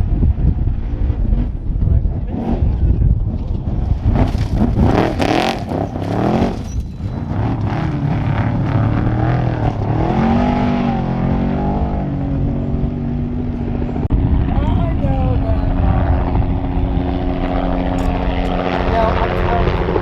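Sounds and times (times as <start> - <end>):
truck engine revving: 0.7 - 14.5.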